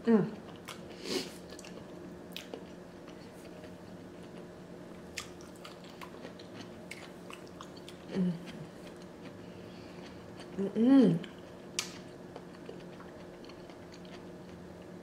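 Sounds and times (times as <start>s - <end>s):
steady low hum: 0.0s - 15.0s
person chewing food: 0.4s - 10.6s, 11.2s - 15.0s
person humming: 8.1s - 8.6s.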